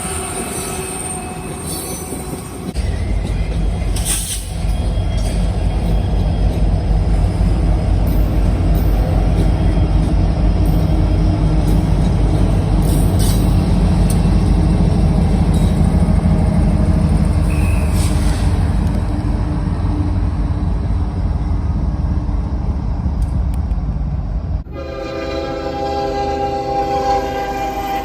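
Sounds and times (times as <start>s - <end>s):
freight train rumbling by: 0.0s - 28.0s
locomotive air horn chord: 24.7s - 28.0s.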